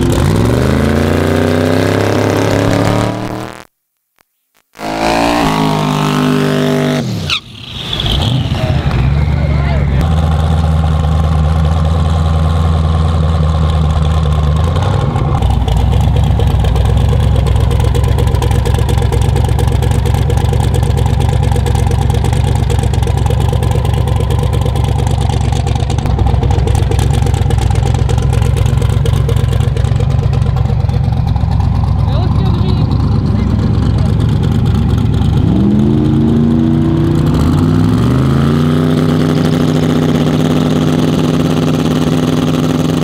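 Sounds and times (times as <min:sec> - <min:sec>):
car engine idling loudly: 0:09.4 - 0:43.0.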